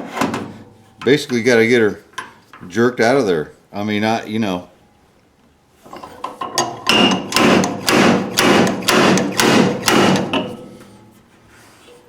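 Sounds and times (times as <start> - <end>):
dent puller striking metal: 6.5 - 10.8.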